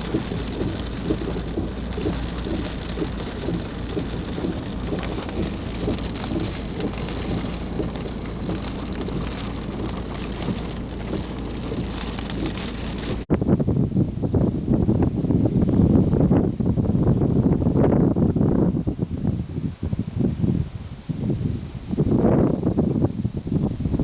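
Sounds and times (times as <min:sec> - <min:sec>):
heavy rain falling: 0:00.0 - 0:13.3
low thunder rumble: 0:00.0 - 0:13.7.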